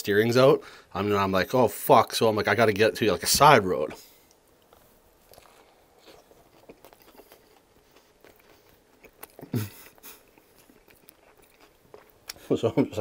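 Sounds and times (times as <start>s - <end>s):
person chewing crunchy food: 4.1s - 12.5s.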